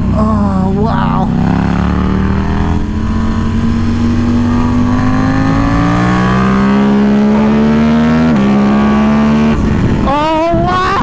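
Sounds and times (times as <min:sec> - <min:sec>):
engine upshift: 0:00.0 - 0:11.0
motorcycle engine accelerating: 0:00.0 - 0:11.0.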